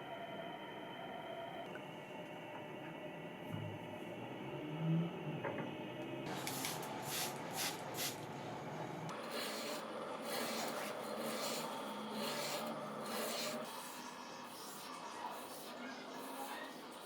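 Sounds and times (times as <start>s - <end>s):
rasping on steel blade: 9.1s - 17.0s.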